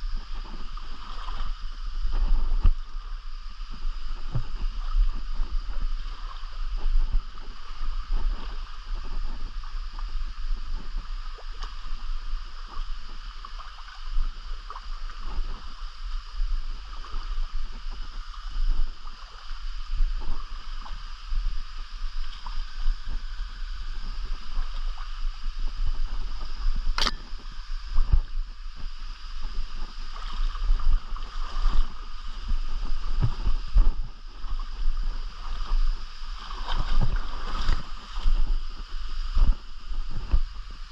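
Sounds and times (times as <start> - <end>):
low uneven rumble: 0.0 - 40.9
sharp click: 27.0 - 27.4.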